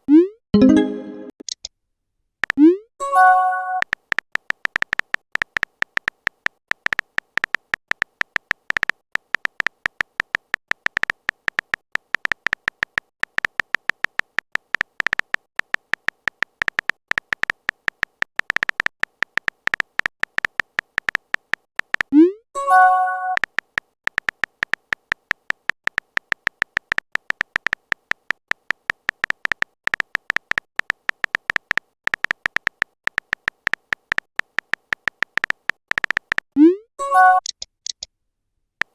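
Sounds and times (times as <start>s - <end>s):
short notification chime: 0.6s - 1.3s
phone keyboard typing clicks: 3.3s - 22.2s, 23.3s - 36.6s.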